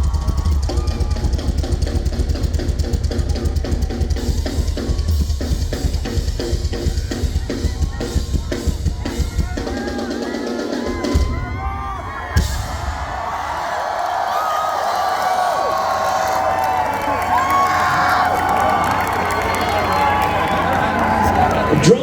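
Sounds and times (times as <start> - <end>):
rock drum solo: 0.0 - 13.8
crowd cheering and whooping: 0.0 - 22.0.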